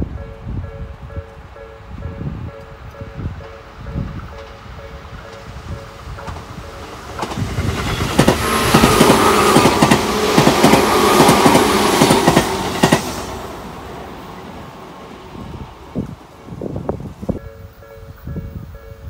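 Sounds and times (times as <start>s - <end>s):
electric train passing: 0.0s - 19.0s
train wheels clacking over rail joints: 5.2s - 13.4s.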